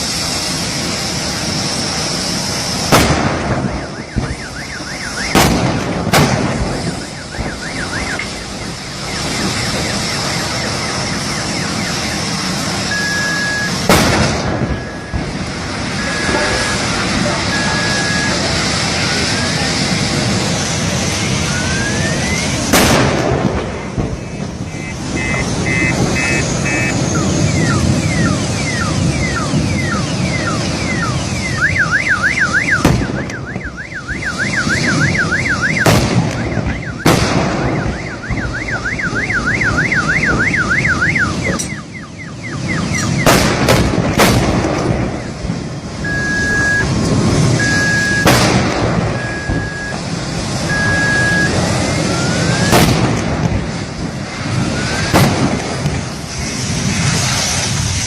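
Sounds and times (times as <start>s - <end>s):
steady background noise: 0.0s - 58.0s
electronic siren yelping: 3.6s - 5.8s, 6.5s - 19.7s, 21.1s - 22.7s, 24.1s - 43.4s, 45.1s - 48.4s, 49.0s - 52.8s, 54.4s - 55.2s
short beeps: 12.8s - 13.8s, 17.4s - 18.5s, 24.7s - 35.8s, 46.0s - 47.0s, 47.6s - 48.3s, 49.2s - 50.0s, 50.6s - 52.7s.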